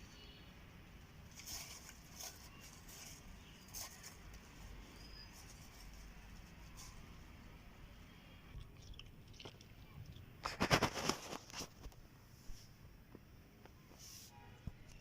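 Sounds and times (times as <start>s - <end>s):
faint rustling: 1.0s - 7.4s
crisp crackles: 1.2s - 7.1s, 8.7s - 12.0s.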